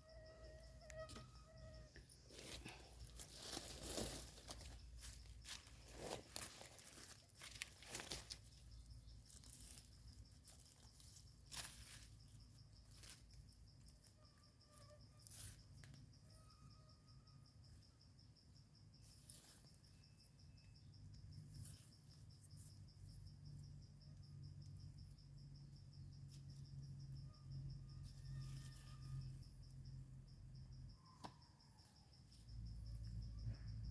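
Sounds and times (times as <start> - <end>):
crickets chirring: 0.0 - 33.9
rustles and snaps in leaf litter: 3.1 - 12.2.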